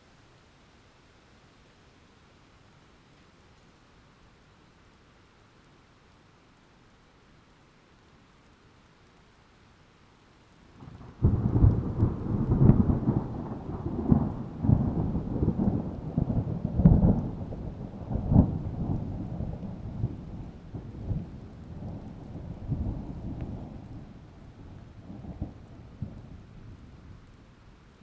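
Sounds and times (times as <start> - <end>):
thunder clap and rumble: 10.8 - 27.1.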